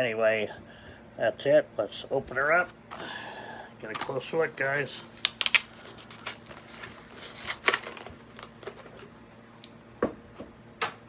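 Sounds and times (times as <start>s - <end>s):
plastic packaging cracking open: 4.0s - 9.8s.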